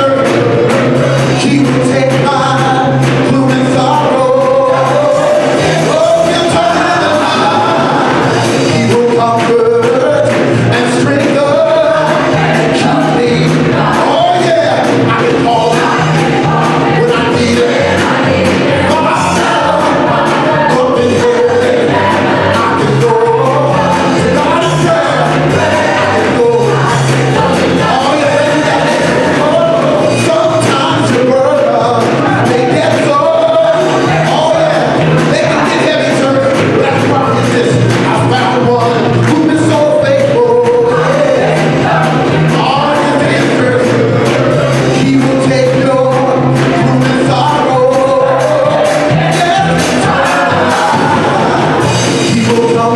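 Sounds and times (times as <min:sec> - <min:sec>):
band playing: 0:00.0 - 0:52.9
held bass notes: 0:00.0 - 0:52.9
steady drumbeat: 0:00.0 - 0:52.9
voices singing gospel: 0:00.0 - 0:52.9.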